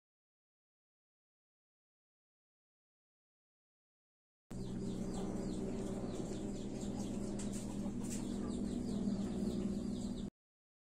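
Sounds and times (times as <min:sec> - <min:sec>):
birds chirping: 0:04.5 - 0:10.3
steady low drone: 0:04.5 - 0:10.3.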